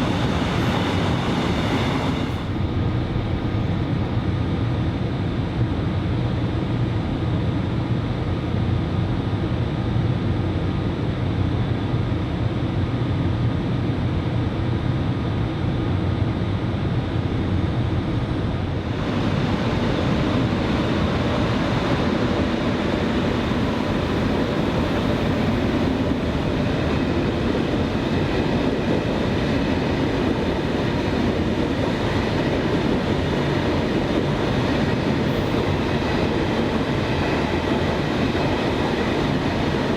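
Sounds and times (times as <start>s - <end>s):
train rumble: 0.0s - 7.7s, 11.0s - 39.9s.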